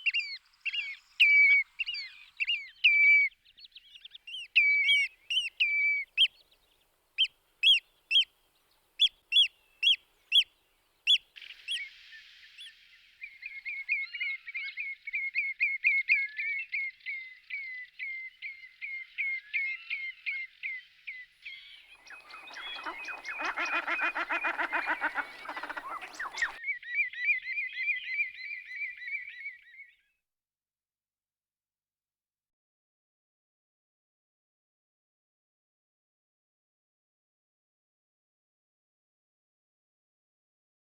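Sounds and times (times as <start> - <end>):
whimbrel whistled calls: 21.5 - 30.0.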